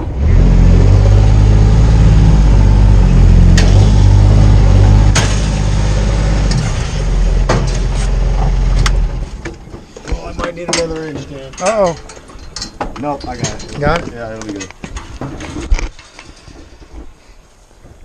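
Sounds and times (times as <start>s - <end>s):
engine running: 0.0s - 9.8s.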